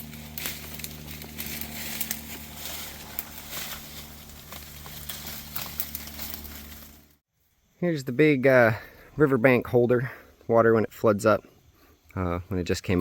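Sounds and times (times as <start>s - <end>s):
twigs snapping: 0.0s - 7.2s
leaves and twigs rustling: 0.0s - 7.5s.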